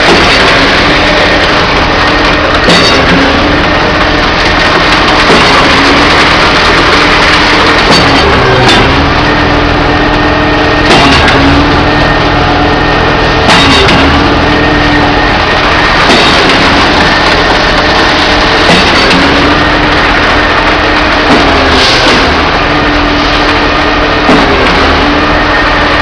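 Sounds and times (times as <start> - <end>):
concrete pump clunking: 0.0 - 26.0
engine and hydraulic hum: 0.0 - 26.0.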